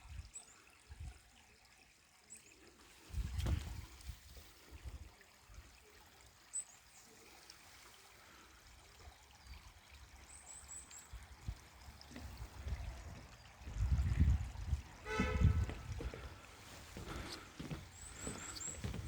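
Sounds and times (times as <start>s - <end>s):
stream rushing: 11.7s - 19.0s
low thumps: 15.0s - 16.3s.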